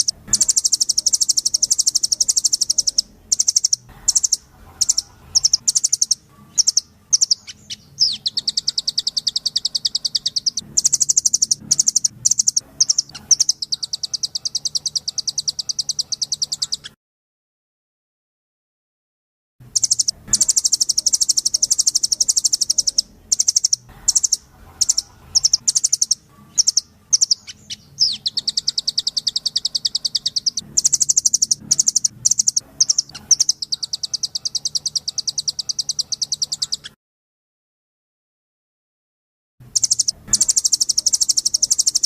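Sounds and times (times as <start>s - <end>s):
songbird chattering trill: 0.0s - 17.0s, 19.7s - 37.0s, 39.7s - 42.0s.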